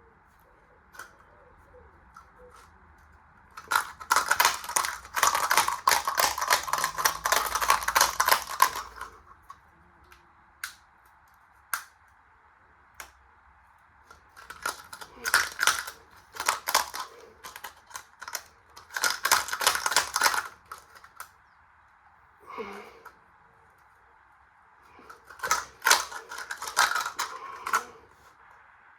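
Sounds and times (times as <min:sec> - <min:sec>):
coin rattling in washing machine drum: 0:03.6 - 0:09.1, 0:14.4 - 0:20.9, 0:25.3 - 0:27.9.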